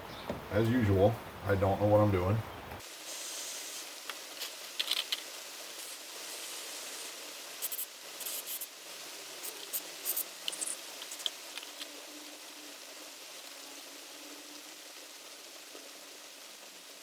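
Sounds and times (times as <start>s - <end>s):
steady hiss: 0.0s - 17.0s
small metal parts scraping and clicking: 4.1s - 6.0s, 7.6s - 8.7s, 9.4s - 12.0s.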